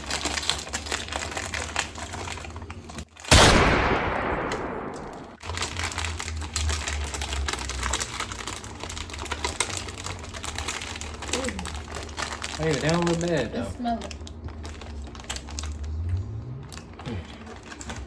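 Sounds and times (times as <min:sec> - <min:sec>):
plastic wrappers crinkling: 0:00.0 - 0:03.4, 0:04.0 - 0:18.0
loud bang: 0:03.3 - 0:05.4.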